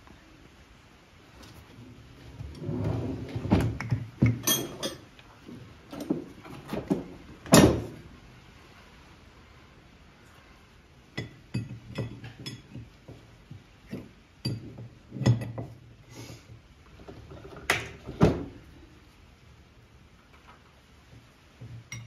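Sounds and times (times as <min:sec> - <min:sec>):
wrenches clinking against metal: 0:04.4 - 0:05.1.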